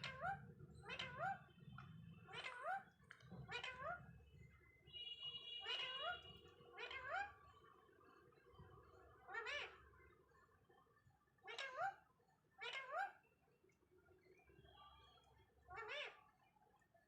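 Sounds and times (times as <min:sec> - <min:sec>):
parakeet calling: 0:00.0 - 0:04.2, 0:04.9 - 0:07.5, 0:09.3 - 0:09.8, 0:11.5 - 0:12.0, 0:12.6 - 0:13.2, 0:15.7 - 0:16.3.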